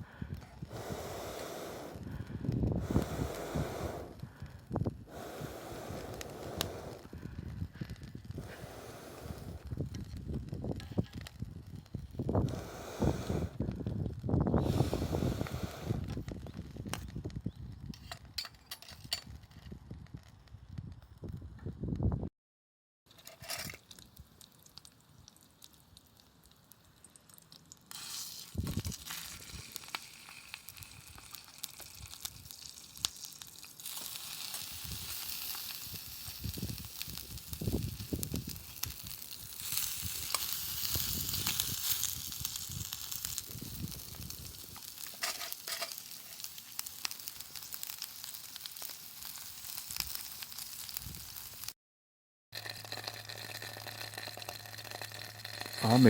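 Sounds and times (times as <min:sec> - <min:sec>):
food sizzling over campfire: 0:00.0 - 0:21.4, 0:23.1 - 0:51.8, 0:52.6 - 0:56.0.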